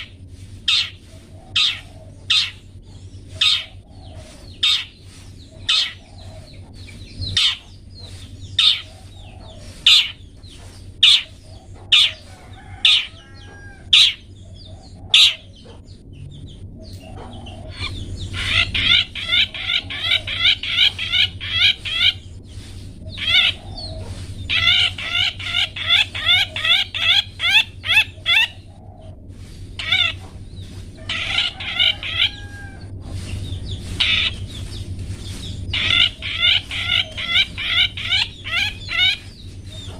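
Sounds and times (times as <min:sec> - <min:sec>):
shrike rapid chattering: 0:29.6 - 0:32.5, 0:33.3 - 0:39.9.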